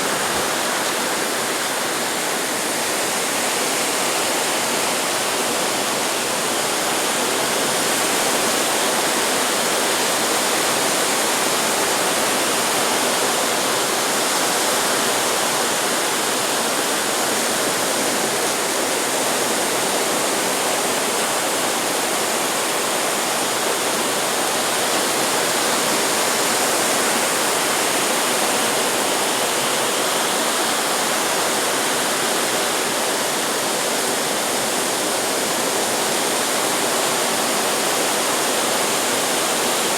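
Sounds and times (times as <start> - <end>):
ocean surf hissing: 0.0 - 3.9.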